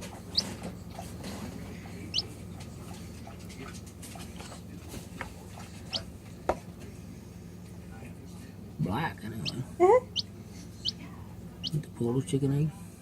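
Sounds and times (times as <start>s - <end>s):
chicks peeping: 0.0s - 3.8s, 5.5s - 6.2s, 9.4s - 11.9s
low steady hum: 0.0s - 13.0s.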